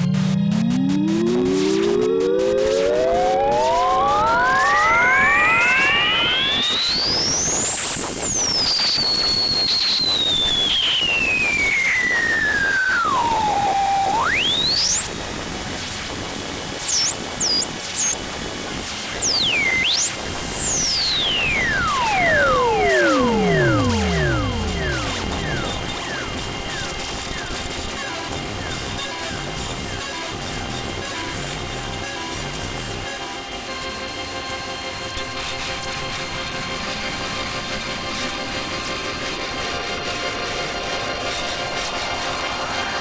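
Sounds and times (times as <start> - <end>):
synthesized tones sliding in pitch: 0.0 - 31.6.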